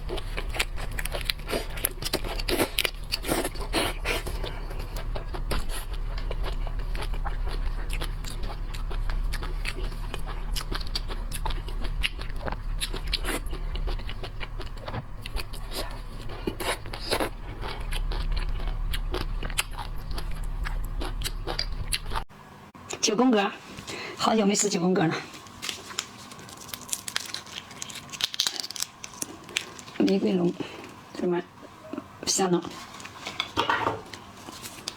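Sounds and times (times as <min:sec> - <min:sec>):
chewing and crunching shellfish: 0:00.0 - 0:22.3, 0:25.4 - 0:31.1, 0:32.8 - 0:34.9
low hum: 0:00.0 - 0:22.8.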